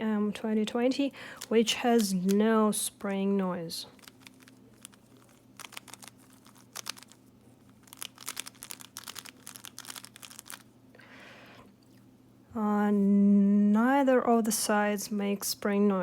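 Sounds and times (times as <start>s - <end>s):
plastic puzzle cube clicking: 4.0s - 7.2s, 7.8s - 10.6s.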